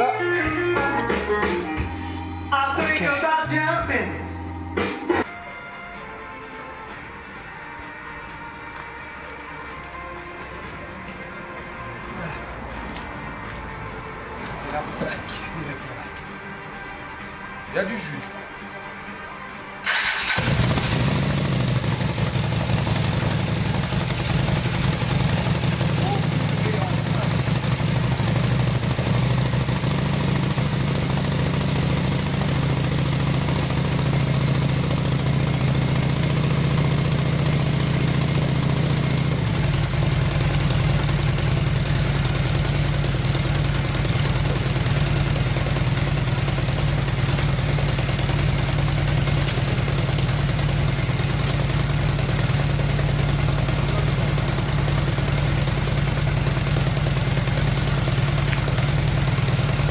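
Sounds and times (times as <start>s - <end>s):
motorcycle engine idling: 19.9s - 59.9s.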